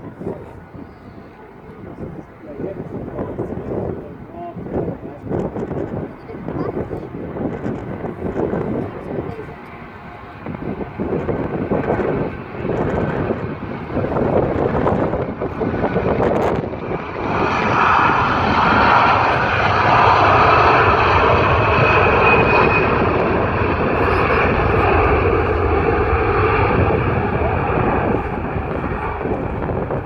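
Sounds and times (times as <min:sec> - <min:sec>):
jet engines roaring: 0:00.0 - 0:30.0
faint engine whine: 0:16.6 - 0:30.0.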